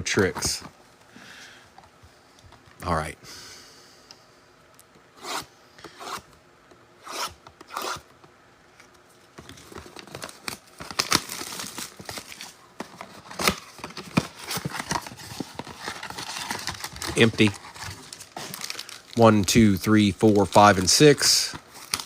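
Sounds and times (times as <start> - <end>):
card packs crinkling and tearing: 9.4 - 22.0.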